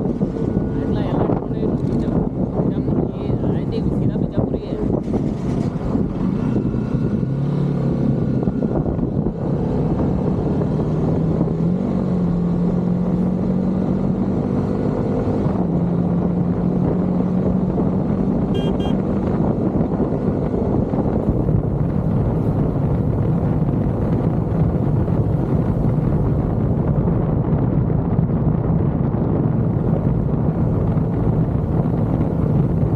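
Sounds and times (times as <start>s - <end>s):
motorcycle engine running: 18.3s - 32.9s.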